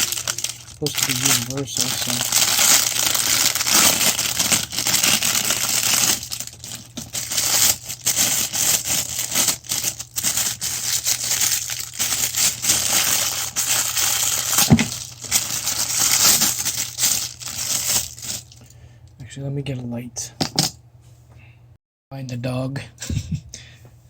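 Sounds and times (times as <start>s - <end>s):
plastic crinkling and rustling: 0.0s - 18.7s
steady low hum: 0.0s - 24.0s.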